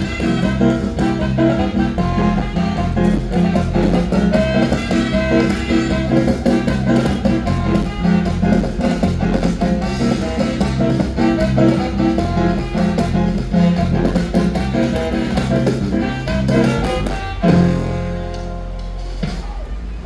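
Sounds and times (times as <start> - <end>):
lively band music: 0.0 - 20.0.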